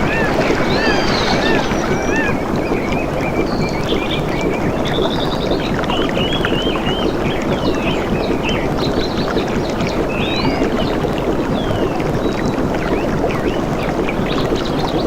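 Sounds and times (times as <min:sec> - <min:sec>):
birds chirping and trilling: 0:00.0 - 0:03.7
rushing splashing water: 0:00.0 - 0:12.6.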